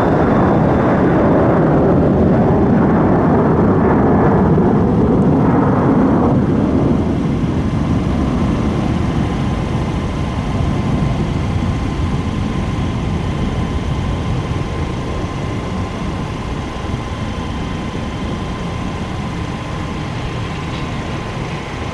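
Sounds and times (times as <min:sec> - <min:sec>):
faint steady whine: 0:00.0 - 0:21.9
jet engines rumbling: 0:00.0 - 0:21.9.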